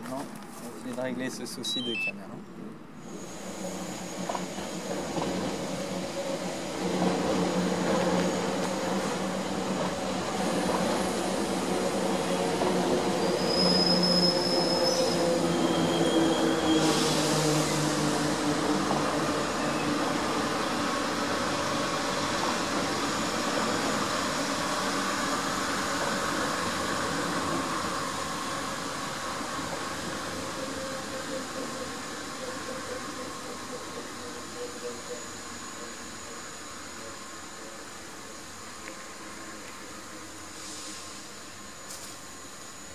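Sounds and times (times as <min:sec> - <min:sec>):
electric train passing: 0:02.8 - 0:42.9
high wheel squeals: 0:12.8 - 0:18.1, 0:19.2 - 0:20.9.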